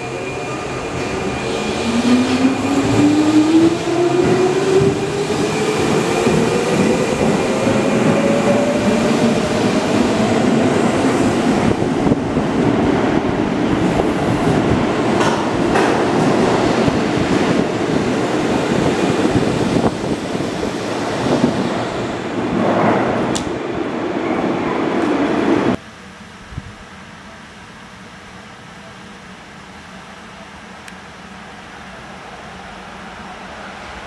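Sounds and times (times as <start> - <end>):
electric train rumbling past: 0.0 - 25.8.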